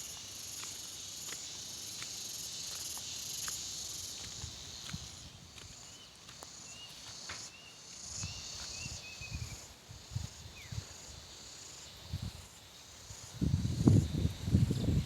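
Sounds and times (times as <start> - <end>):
footsteps on earth: 0.0 - 9.7
insects trilling: 0.0 - 15.0.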